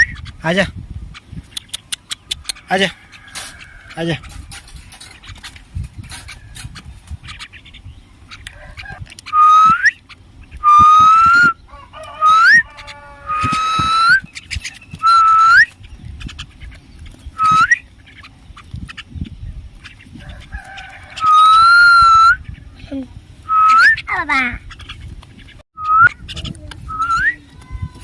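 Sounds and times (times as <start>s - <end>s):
bird whistled calls: 9.2s - 15.8s, 17.3s - 17.9s, 21.2s - 22.5s, 23.4s - 24.2s, 25.8s - 27.4s.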